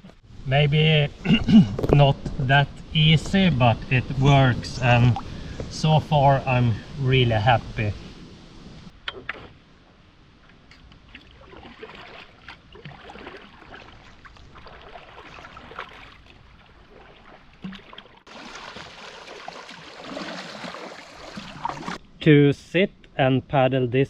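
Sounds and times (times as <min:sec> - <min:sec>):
paddle splashing in water: 0:11.0 - 0:22.0
water dripping: 0:11.0 - 0:22.0.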